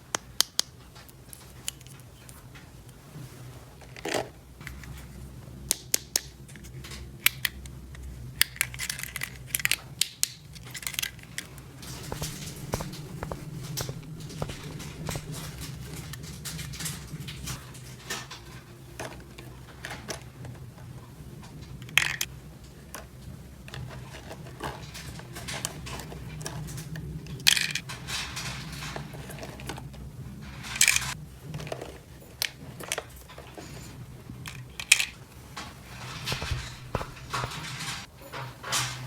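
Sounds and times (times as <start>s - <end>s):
sharp plastic clacks: 11.8s - 15.8s.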